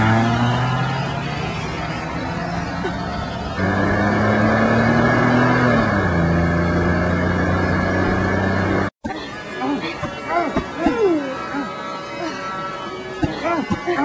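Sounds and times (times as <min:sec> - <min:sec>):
car engine running: 0:00.0 - 0:08.9.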